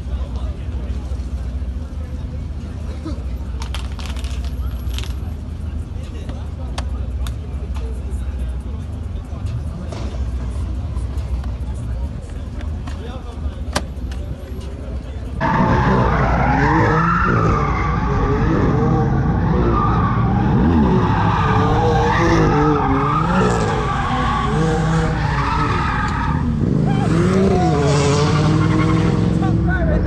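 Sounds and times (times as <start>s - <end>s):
hard-running car engine: 0.0s - 30.0s
car tyres squealing: 15.3s - 29.8s.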